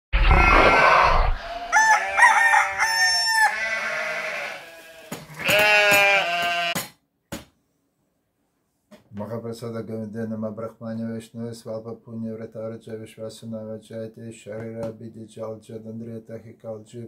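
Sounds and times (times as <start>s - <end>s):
rooster crowing: 0.3s - 6.8s.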